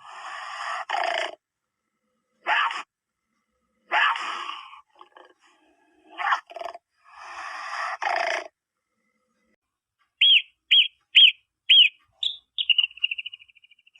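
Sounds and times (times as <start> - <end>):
breathy rasping animal sound: 0.0 - 9.6
bird chirps: 10.2 - 13.9.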